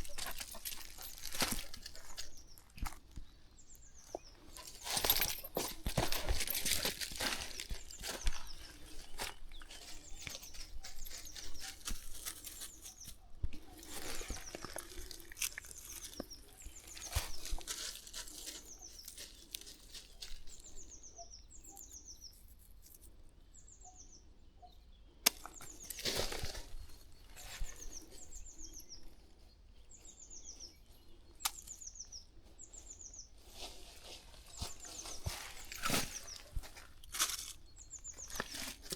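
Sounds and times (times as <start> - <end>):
rustling: 0.0 - 3.2, 4.0 - 20.8, 32.6 - 38.9
footsteps on a path: 0.0 - 21.0, 25.3 - 38.9.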